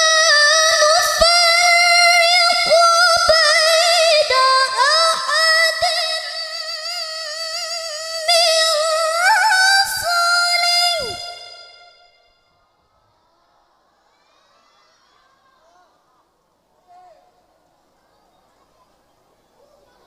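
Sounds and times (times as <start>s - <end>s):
woman chanting melodically: 0.0s - 12.3s.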